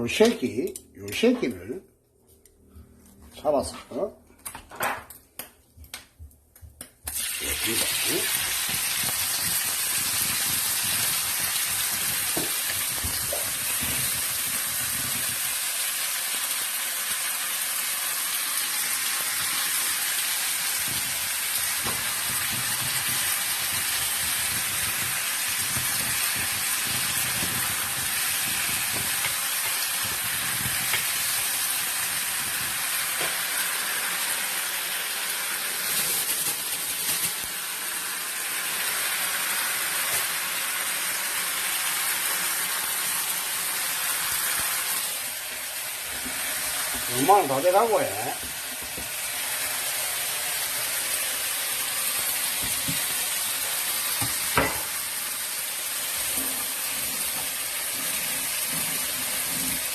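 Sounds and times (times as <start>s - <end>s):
food sizzling in a pan: 7.0s - 59.9s.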